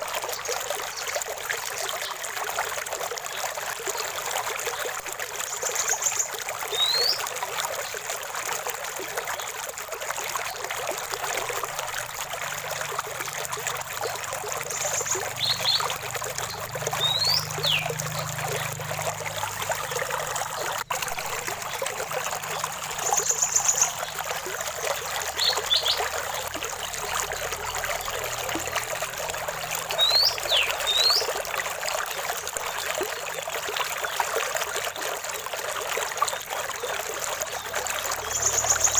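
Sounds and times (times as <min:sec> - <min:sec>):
stream water trickling: 0:00.0 - 0:38.9
birds whistling and chirping: 0:05.6 - 0:07.2, 0:14.7 - 0:18.3, 0:23.0 - 0:24.2, 0:25.3 - 0:26.2, 0:29.9 - 0:31.3, 0:38.2 - 0:38.9.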